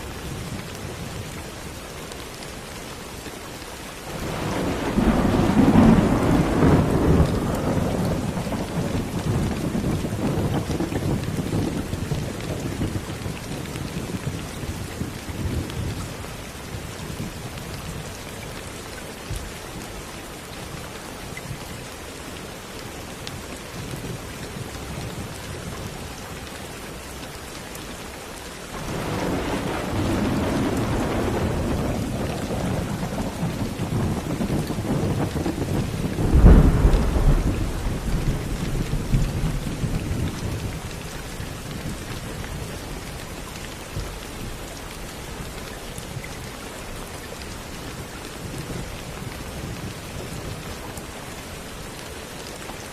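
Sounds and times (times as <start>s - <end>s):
steady rain: 0.0s - 52.9s
thunder rumbling: 4.1s - 15.7s, 28.8s - 40.8s.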